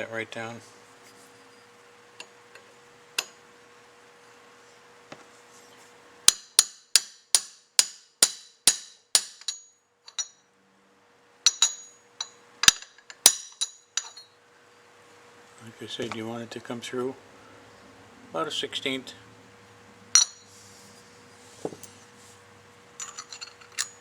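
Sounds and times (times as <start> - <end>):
hammer tapping metal punch: 6.3 - 10.3.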